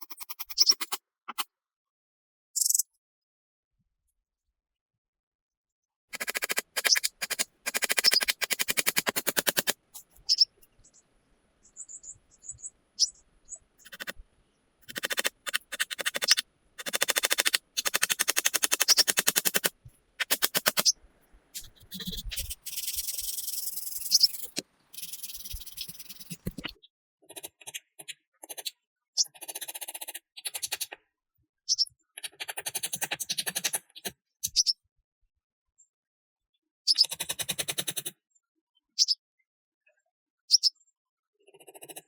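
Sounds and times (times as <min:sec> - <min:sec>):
rapid rattling clicks: 0:06.2 - 0:09.8, 0:13.8 - 0:14.2, 0:14.8 - 0:20.9.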